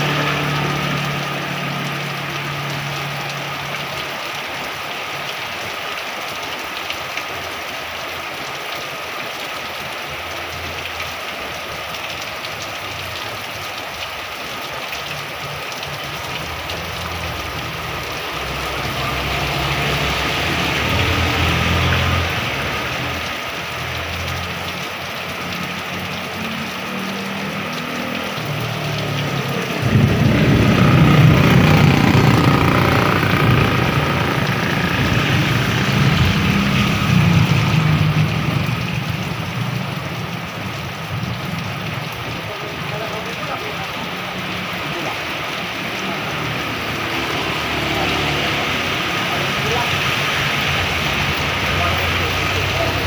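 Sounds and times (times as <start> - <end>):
heavy rain falling: 0.0 - 53.0
low engine rumble: 28.3 - 41.7.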